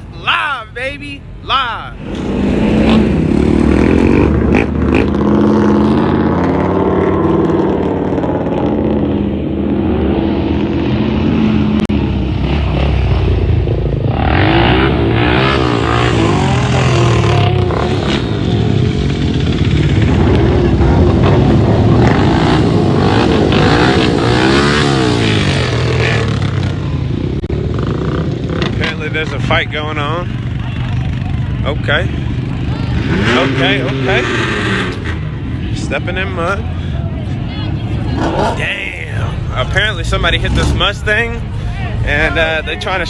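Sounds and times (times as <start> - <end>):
vehicle engine revving: 2.0 - 43.0.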